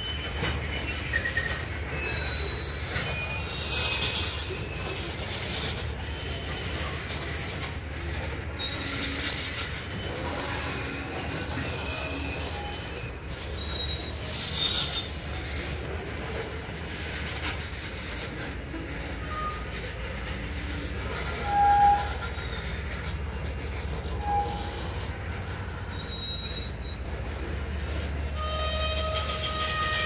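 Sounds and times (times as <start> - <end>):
high-pitched wheel squeals: 0.0 - 15.8, 19.2 - 19.8, 20.6 - 23.2, 24.0 - 27.2, 28.3 - 30.0
train wheels rumbling on rail: 0.0 - 30.0.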